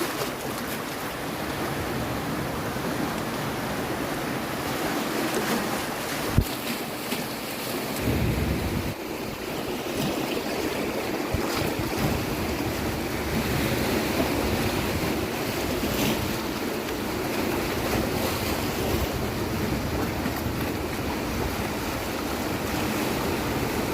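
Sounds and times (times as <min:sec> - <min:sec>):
ocean waves breaking: 0:00.0 - 0:23.9
wind on microphone: 0:08.0 - 0:23.9.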